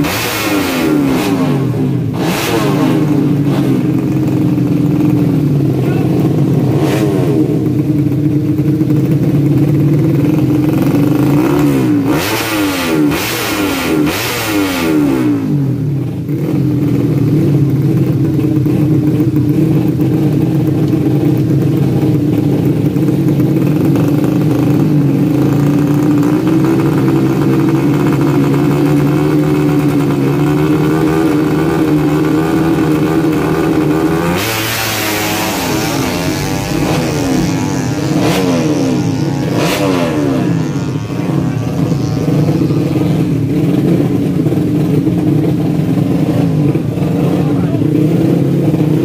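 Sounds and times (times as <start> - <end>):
motorcycle engines revving: 0.0 - 49.0.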